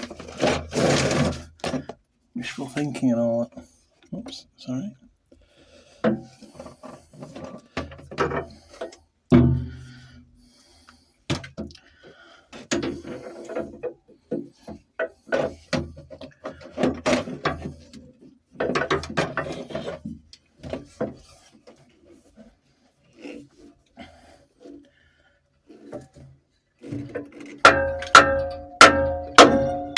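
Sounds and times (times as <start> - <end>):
metal tools clanking on engine: 27.0 - 29.9.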